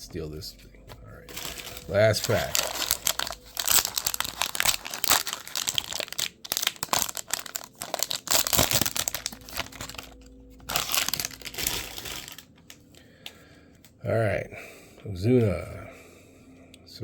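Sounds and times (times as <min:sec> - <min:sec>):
wrapper crinkling and tearing: 0:01.2 - 0:12.9.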